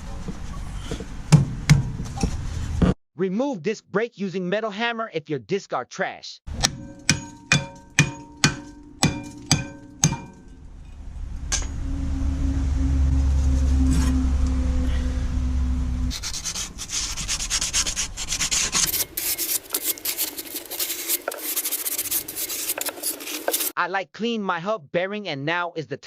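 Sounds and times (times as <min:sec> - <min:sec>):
hammer ringing on metal disc: 0:06.5 - 0:10.6
low steady hum: 0:06.5 - 0:17.6
rapid rasping scraping: 0:16.1 - 0:23.8.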